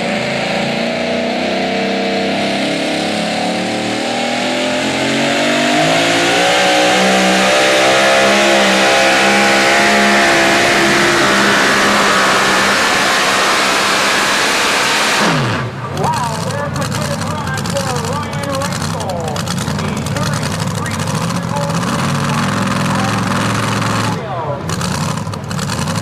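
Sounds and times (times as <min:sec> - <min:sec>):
truck engine running under load: 0:06.9 - 0:26.0.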